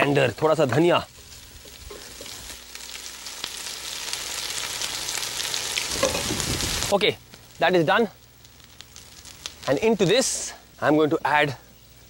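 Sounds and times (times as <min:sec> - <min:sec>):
food sizzling in hot oil: 0:00.0 - 0:10.5.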